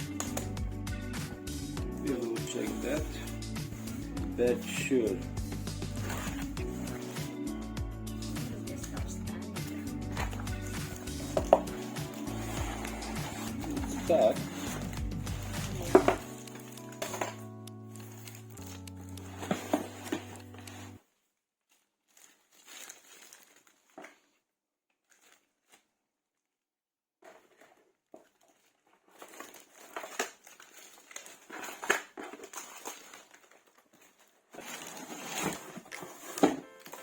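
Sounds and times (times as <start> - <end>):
background music: 0.0 - 21.0
packaging crinkling and rustling: 2.0 - 26.0, 27.2 - 37.0.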